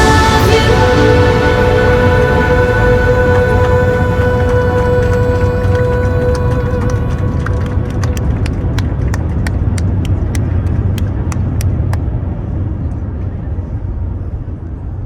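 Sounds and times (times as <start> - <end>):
airplane rolling rumble: 0.0 - 15.0.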